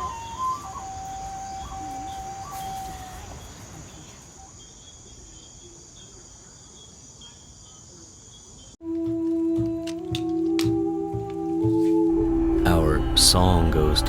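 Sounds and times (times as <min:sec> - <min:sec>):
music: 0:00.0 - 0:03.1, 0:08.8 - 0:14.0
lower insect chirp: 0:00.0 - 0:08.8
crickets trilling: 0:00.0 - 0:14.0.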